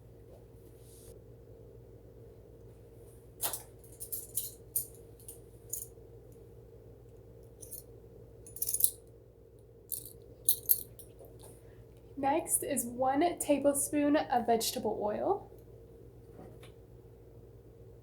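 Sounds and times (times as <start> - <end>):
metal utensils clinking: 3.4 - 5.9, 8.5 - 9.0, 9.9 - 11.1.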